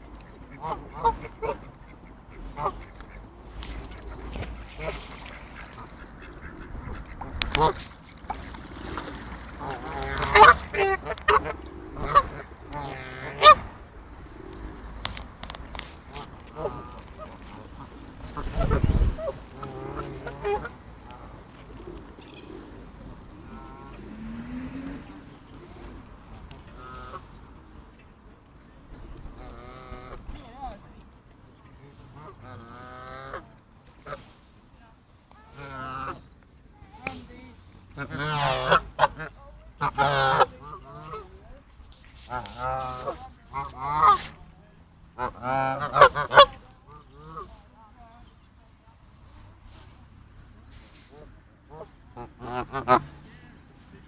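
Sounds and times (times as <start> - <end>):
waterfowl honking: 0.0 - 14.9, 15.8 - 22.6, 26.7 - 27.4, 31.9 - 34.3, 35.5 - 36.2, 38.0 - 41.5, 42.2 - 44.4, 45.1 - 47.6, 51.1 - 53.2
low rumble on microphone: 16.0 - 25.8.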